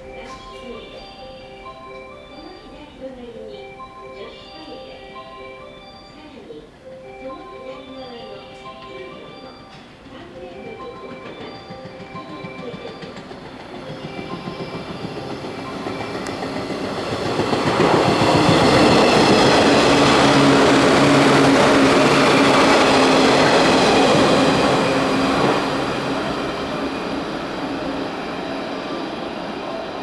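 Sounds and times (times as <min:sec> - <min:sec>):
passing train hum: 0:00.0 - 0:30.0
train wheels clattering on rails: 0:08.1 - 0:30.0.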